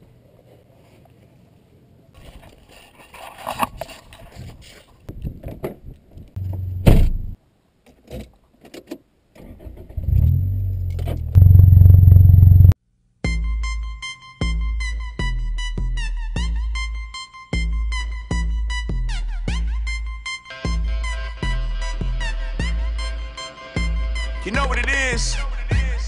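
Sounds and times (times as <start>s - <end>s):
car engine starting and running: 9.5s - 12.8s.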